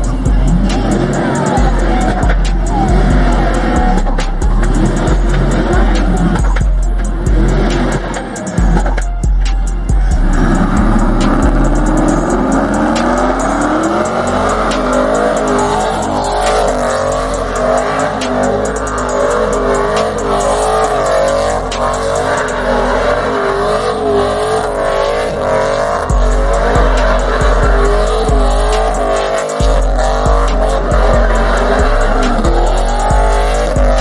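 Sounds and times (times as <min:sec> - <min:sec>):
car engine revving: 0:00.0 - 0:34.0
tires squealing: 0:00.0 - 0:34.0.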